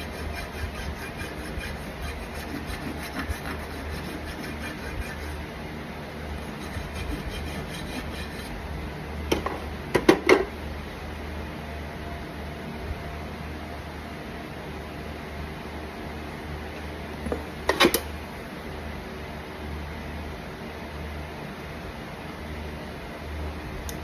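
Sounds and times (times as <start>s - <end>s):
rasp filing a hoof: 0.0s - 5.5s, 6.4s - 8.6s.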